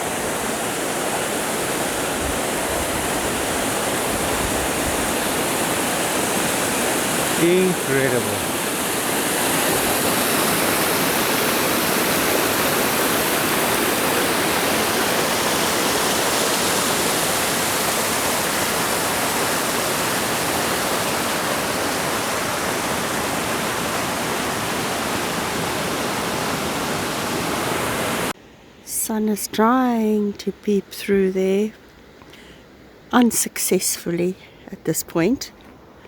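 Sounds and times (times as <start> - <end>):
waterfall rushing: 0.0 - 28.4.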